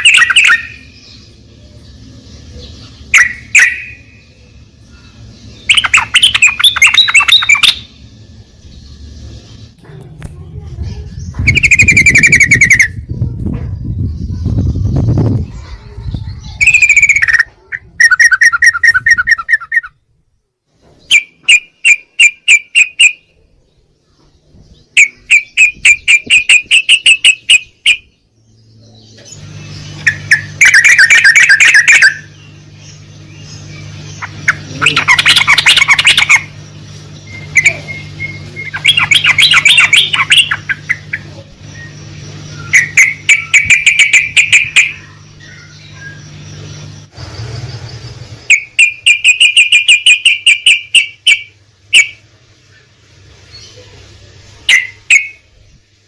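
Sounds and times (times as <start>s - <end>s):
bird chattering song: 0.0s - 20.0s, 20.8s - 55.9s
low hum: 0.0s - 21.1s, 23.2s - 56.0s.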